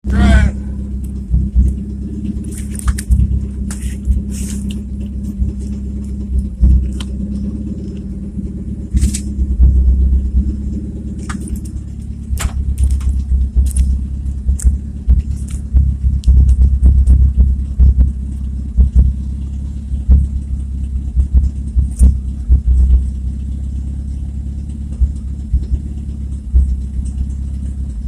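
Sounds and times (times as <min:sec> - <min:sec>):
car engine with loud exhaust: 0:00.0 - 0:28.0
clicks and rattles: 0:01.0 - 0:08.1, 0:08.9 - 0:23.6.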